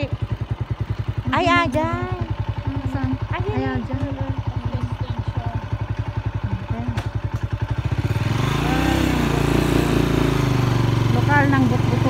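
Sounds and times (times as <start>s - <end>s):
motorcycle engine idling and revving: 0.0s - 12.0s.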